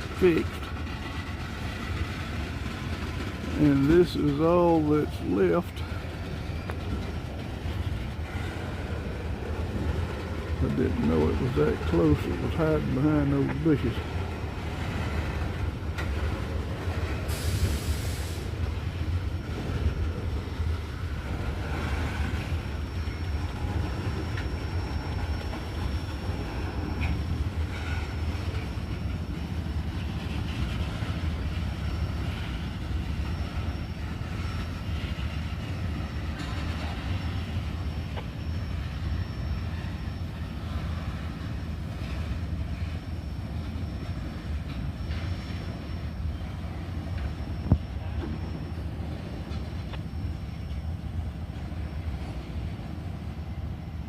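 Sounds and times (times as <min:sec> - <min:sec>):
clickety-clack of wheels: 0:00.0 - 0:18.8, 0:32.2 - 0:38.3
freight train wheels rumbling: 0:00.0 - 0:54.0
high wheel squeal: 0:03.6 - 0:14.1, 0:14.7 - 0:54.0.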